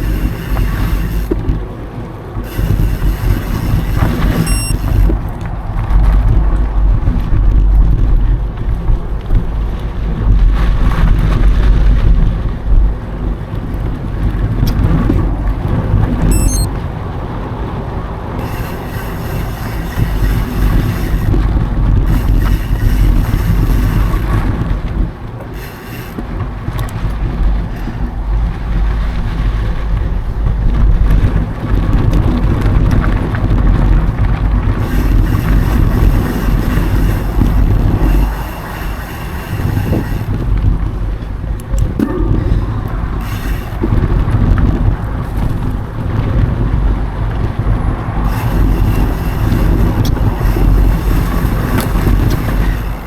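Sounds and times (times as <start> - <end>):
bike tyres rolling on dirt: 0.0 - 53.0
wind buffeting microphone: 26.2 - 53.0.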